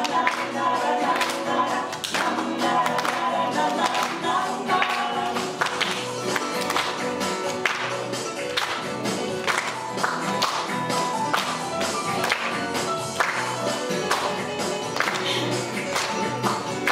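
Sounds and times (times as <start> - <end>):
person singing: 0.0 - 6.1, 14.4 - 16.9
plucked string instruments: 0.0 - 16.9.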